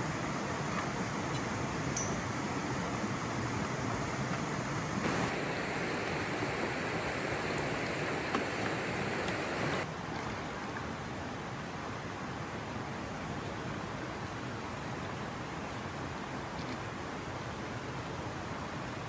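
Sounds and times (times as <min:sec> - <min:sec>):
rushing flowing water: 0:00.0 - 0:09.9.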